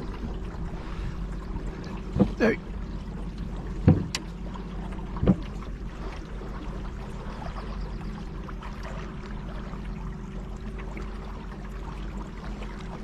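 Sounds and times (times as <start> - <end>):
low even hum: 0.0 - 13.0
water and kayak hull noise: 0.0 - 13.0
knock: 3.8 - 4.2.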